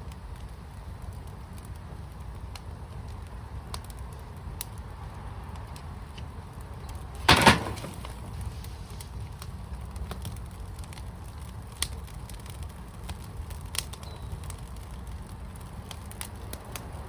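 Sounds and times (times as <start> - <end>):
wood fire crackling: 0.0 - 17.0
loud cluster of fire pops: 6.5 - 17.0.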